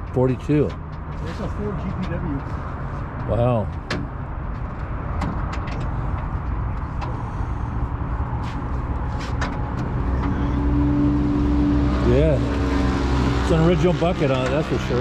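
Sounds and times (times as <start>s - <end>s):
vehicle engine rumbling: 0.0s - 15.0s
steady droning tone: 10.0s - 15.0s.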